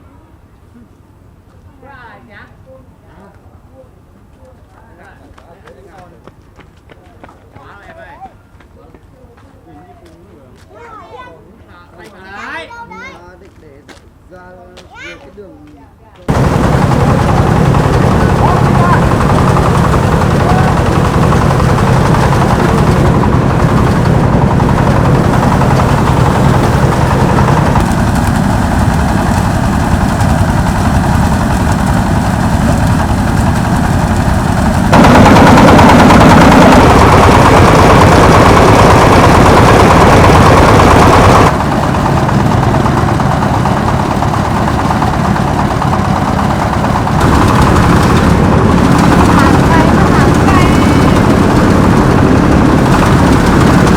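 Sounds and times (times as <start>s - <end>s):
engine running with rough chug: 16.3s - 53.9s.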